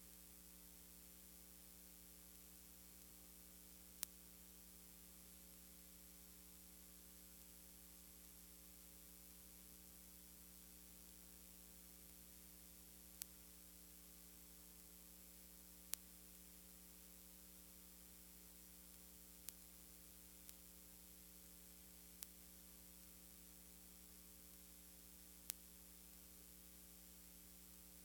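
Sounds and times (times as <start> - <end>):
electrical mains hum and hiss: 0.0 - 28.0.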